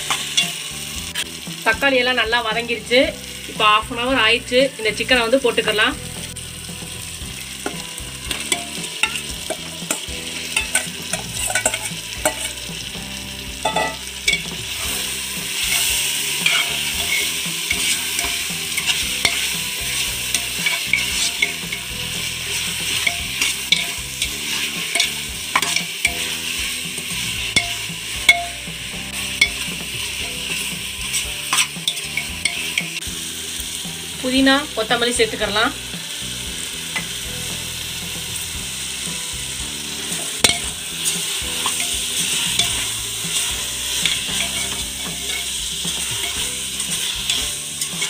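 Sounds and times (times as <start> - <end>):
chicken sizzling in hot oil: 0.0 - 48.0
metal ladle scraping pot: 7.6 - 12.6, 13.6 - 33.0, 40.0 - 48.0.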